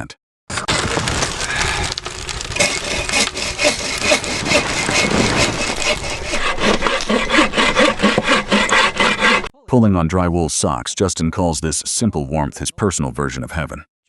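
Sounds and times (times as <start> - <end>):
saw cutting wood: 1.9 - 9.5.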